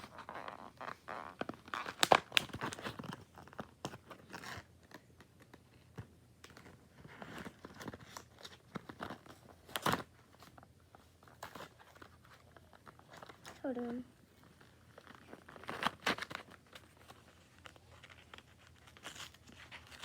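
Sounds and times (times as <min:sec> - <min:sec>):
packaging being torn open: 0:01.4 - 0:04.7, 0:15.0 - 0:20.0.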